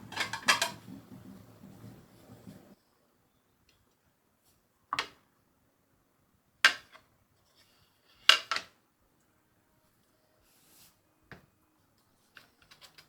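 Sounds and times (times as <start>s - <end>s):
kitchen items clacking: 0.0s - 2.8s.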